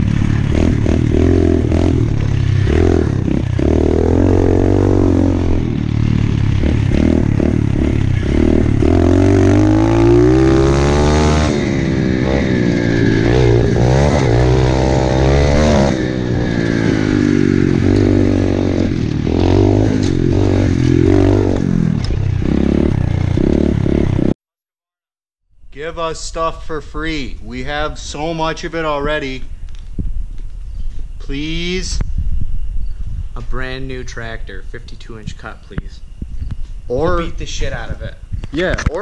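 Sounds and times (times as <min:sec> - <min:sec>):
small motorbike engine revving: 0:00.0 - 0:24.4.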